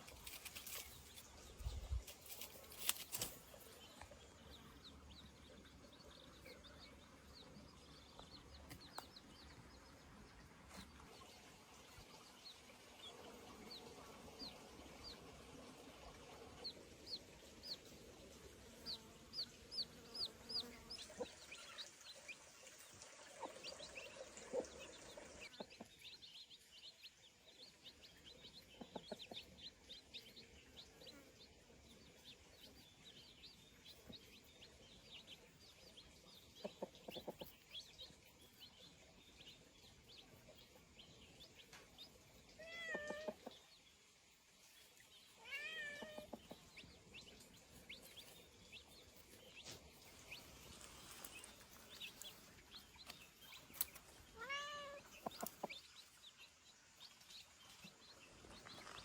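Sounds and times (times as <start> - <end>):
cat meowing: 42.6 - 43.3, 45.4 - 46.3, 54.4 - 55.1.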